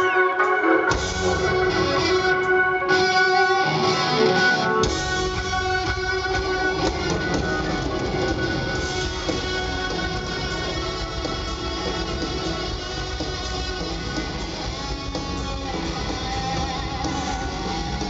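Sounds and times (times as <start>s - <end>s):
electric guitar: 0.0s - 18.0s
rock band playing: 0.0s - 18.0s.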